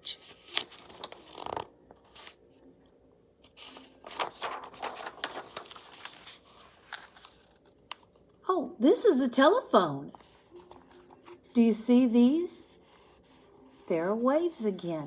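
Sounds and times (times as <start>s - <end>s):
book pages turning: 0.1s - 2.4s, 3.4s - 8.2s, 10.1s - 11.6s.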